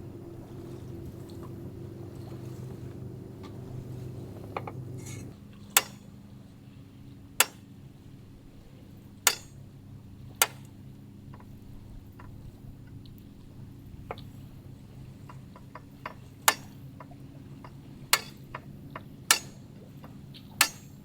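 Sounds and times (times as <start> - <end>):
low steady hum: 0.0 - 5.4.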